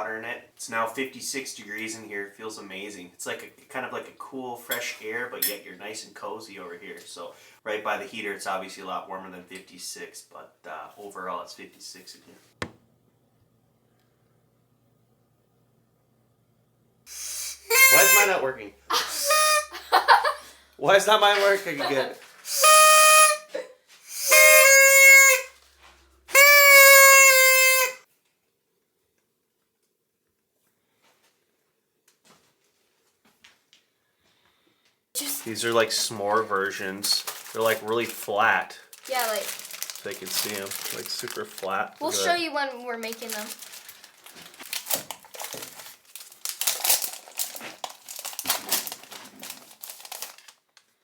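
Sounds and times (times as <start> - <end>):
blown toy noisemaker notes: 17.1 - 20.2, 22.5 - 25.5, 26.3 - 28.0, 39.0 - 41.3, 42.0 - 42.5
plastic packaging rustling: 35.2 - 51.0.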